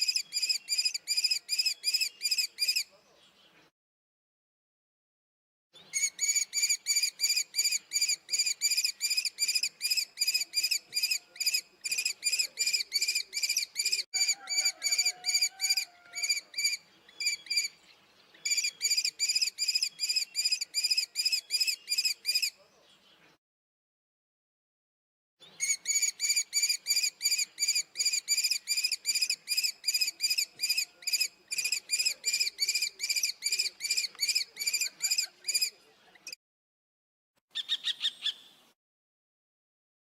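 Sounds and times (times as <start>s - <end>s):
kestrel shrill calls: 5.9s - 17.8s, 18.4s - 22.5s, 25.6s - 35.7s, 37.6s - 38.5s.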